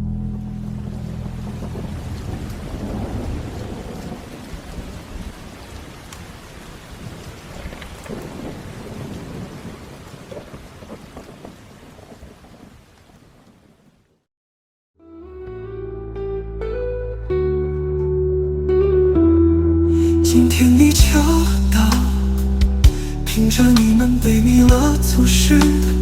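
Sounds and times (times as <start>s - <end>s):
thunder rumbling: 0.0s - 12.8s
heavy rain: 0.0s - 14.0s, 20.0s - 26.0s.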